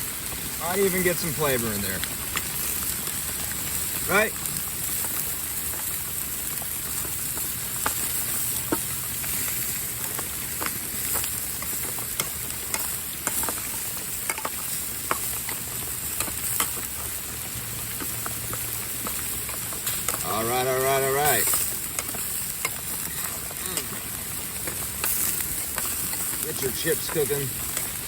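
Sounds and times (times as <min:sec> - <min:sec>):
food sizzling on a grill: 0:00.0 - 0:28.0.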